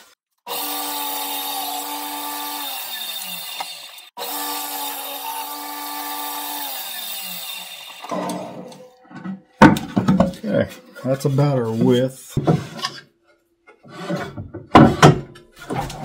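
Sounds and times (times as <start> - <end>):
table saw motor winding down: 0.5 - 8.8.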